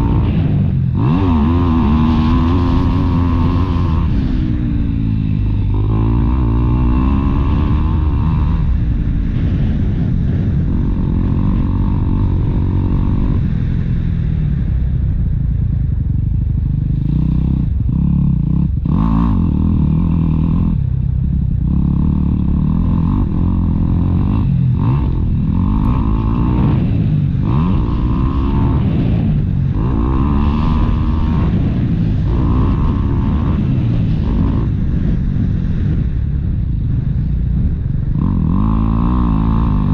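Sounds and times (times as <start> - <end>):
motocross bike engine revving: 0.0 - 14.2, 16.5 - 36.1, 38.0 - 39.9.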